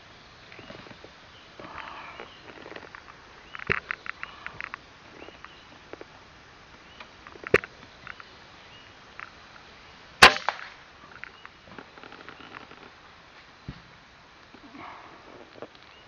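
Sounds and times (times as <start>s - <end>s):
air rifle cracks: 10.2s - 11.3s.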